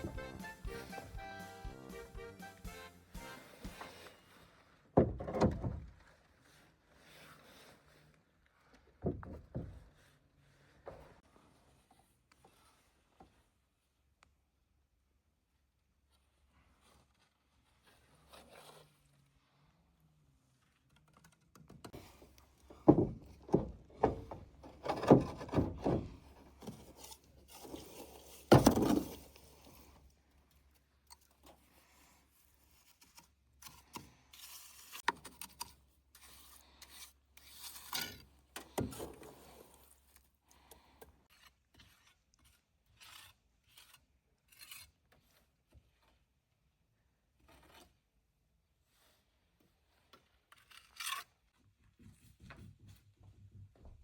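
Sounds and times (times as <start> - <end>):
rubbing and scraping: 0.0 - 4.8, 21.8 - 30.0, 40.8 - 46.2.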